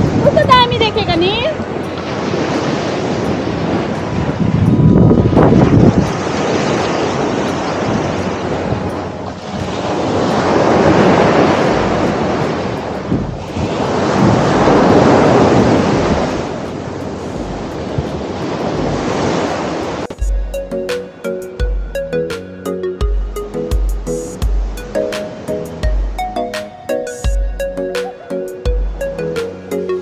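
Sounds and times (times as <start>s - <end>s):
wind buffeting microphone: 0.0s - 20.2s
sea waves washing onto shore: 0.0s - 20.3s.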